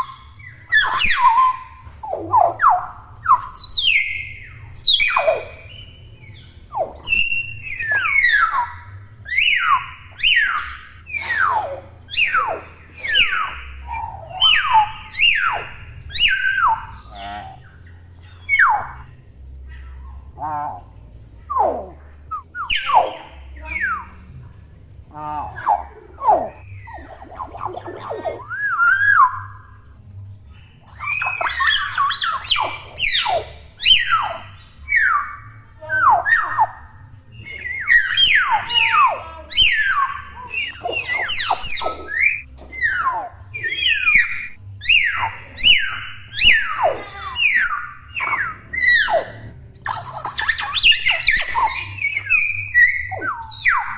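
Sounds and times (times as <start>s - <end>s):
harsh raspy bird calls: 0.0s - 24.3s, 30.8s - 53.9s
myna whistles and squawks: 6.7s - 8.7s, 37.5s - 53.9s
myna downward-sliding whistles: 41.6s - 43.0s.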